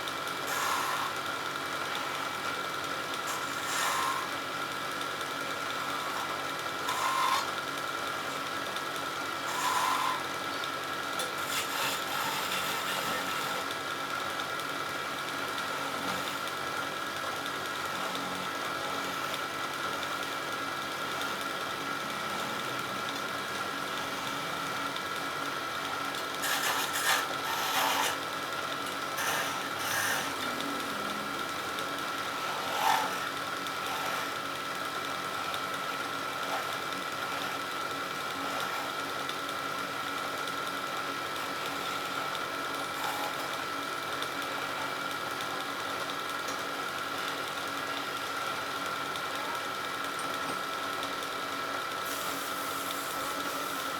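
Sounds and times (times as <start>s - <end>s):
wood lathe whining: 0.0s - 53.9s
turning tool scraping wood: 0.4s - 1.2s, 3.2s - 4.5s, 5.7s - 7.6s, 9.4s - 10.5s, 11.2s - 13.8s, 26.2s - 34.4s, 35.0s - 39.1s, 41.4s - 43.7s.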